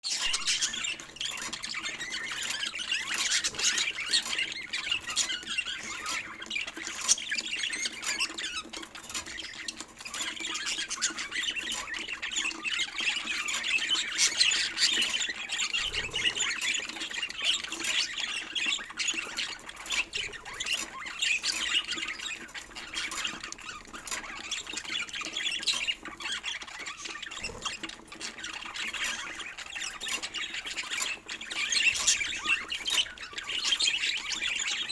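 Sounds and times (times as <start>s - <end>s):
budgerigars chirping and squawking: 0.1s - 34.9s.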